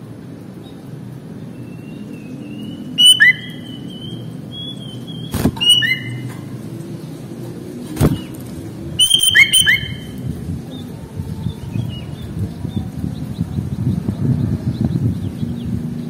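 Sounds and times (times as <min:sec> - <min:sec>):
bulbul calling: 0:01.8 - 0:06.6, 0:08.0 - 0:08.4, 0:09.0 - 0:10.2
thin level whistle: 0:02.5 - 0:06.2, 0:09.0 - 0:10.1.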